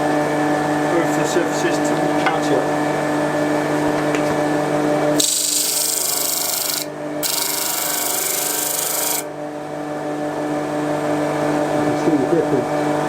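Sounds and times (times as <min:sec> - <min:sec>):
grinding hiss on sanding disc: 0:05.2 - 0:09.3
sander motor humming: 0:05.2 - 0:09.3.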